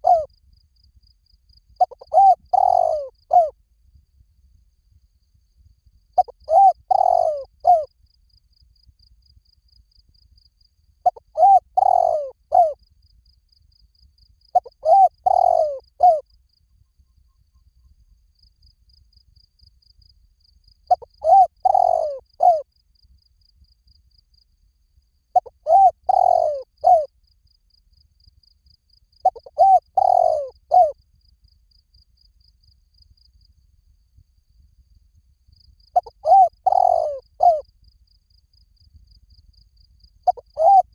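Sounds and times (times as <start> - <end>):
dove cooing: 0.0 - 0.3, 1.8 - 3.5, 6.2 - 7.9, 11.0 - 12.8, 14.6 - 16.2, 20.9 - 22.6, 25.4 - 27.1, 29.2 - 31.0, 36.0 - 37.6, 40.3 - 40.9.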